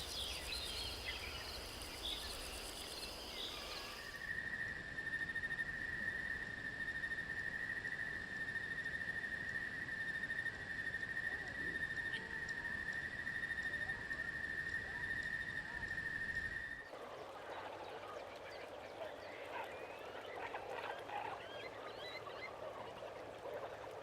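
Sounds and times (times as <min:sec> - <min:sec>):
high-pitched insect drone: 0:00.0 - 0:04.5
lower-pitched insect trill: 0:00.0 - 0:14.0.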